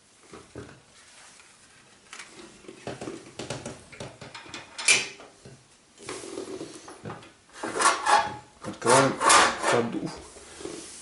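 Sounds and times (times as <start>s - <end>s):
sharp scrape: 7.6s - 11.0s.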